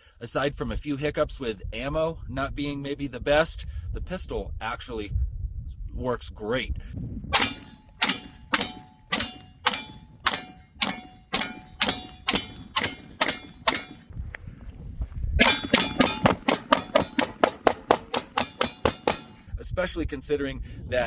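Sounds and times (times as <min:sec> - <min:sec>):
pistol shots: 0:07.4 - 0:14.1, 0:15.4 - 0:19.4
short metallic ring: 0:07.4 - 0:14.1, 0:15.4 - 0:19.5.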